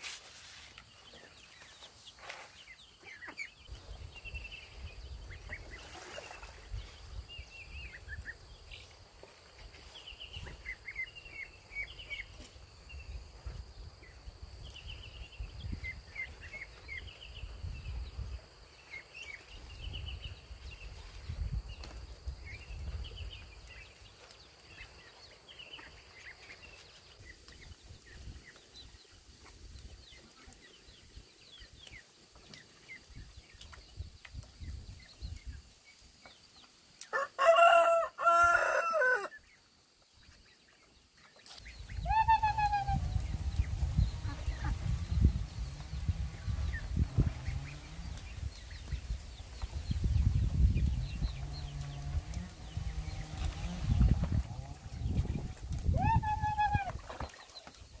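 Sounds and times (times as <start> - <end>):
birds chirping: 9.7 - 58.0.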